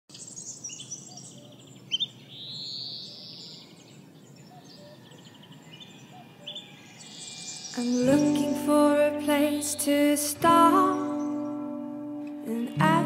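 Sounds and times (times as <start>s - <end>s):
birds chirping and trilling: 0.1s - 8.9s, 10.7s - 11.8s
outdoor ambient hiss: 0.1s - 13.0s.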